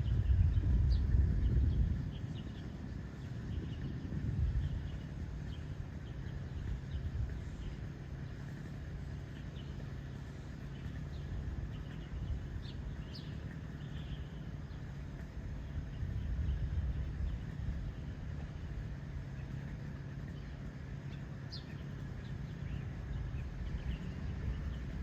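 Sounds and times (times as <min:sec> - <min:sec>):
faint bird chirps: 0:00.0 - 0:18.2
low rumble and hum: 0:00.0 - 0:25.0.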